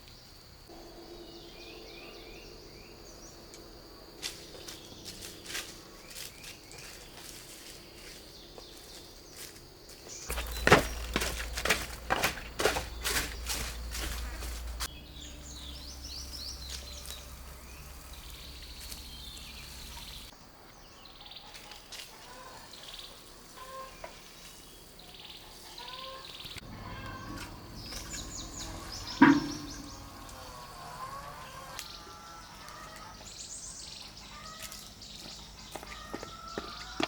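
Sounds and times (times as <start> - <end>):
small birds chirping: 1.2 - 37.0
low hum: 27.6 - 31.8
sharp knocks: 29.2 - 30.2.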